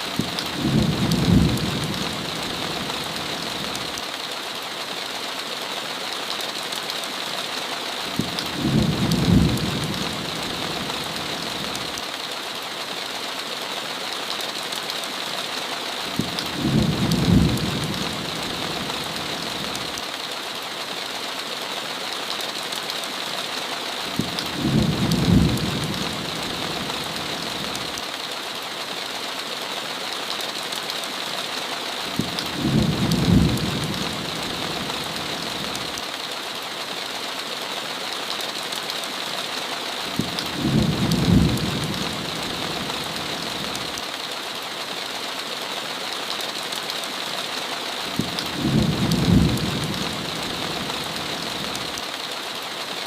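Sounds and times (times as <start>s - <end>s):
heavy rain hissing: 0.0s - 53.0s
thunder rumble: 40.2s - 42.3s, 48.2s - 50.3s.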